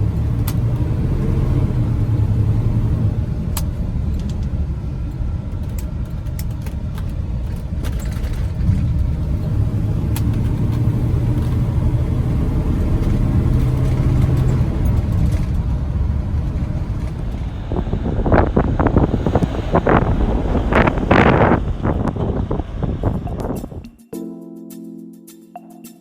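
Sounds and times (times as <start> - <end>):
engine low rumble: 0.0 - 23.9.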